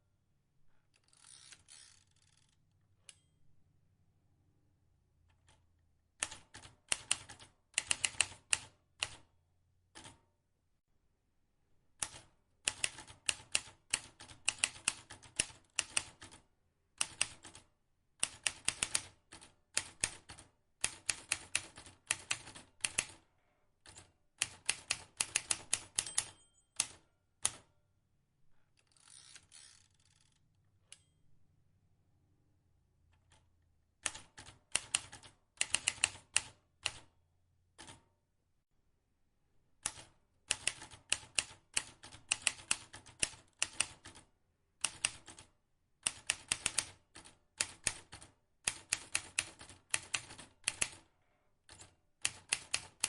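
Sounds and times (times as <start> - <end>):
typewriter keys clicking: 34.0 - 37.0, 39.8 - 44.2, 46.0 - 51.0, 51.7 - 53.0.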